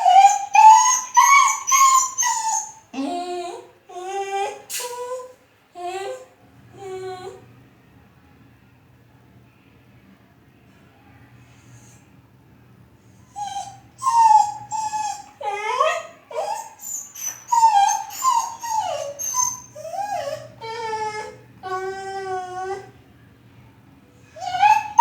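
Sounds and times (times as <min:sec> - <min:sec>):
dog whining and howling: 0:00.0 - 0:07.4, 0:13.3 - 0:22.9, 0:24.4 - 0:25.0.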